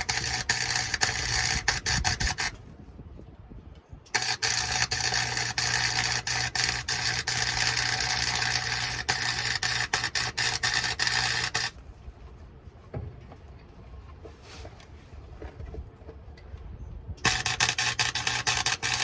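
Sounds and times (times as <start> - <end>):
welding arc crackling hiss: 0.0 - 2.5, 4.2 - 11.7, 17.2 - 19.0
low electrical hum: 0.0 - 19.0.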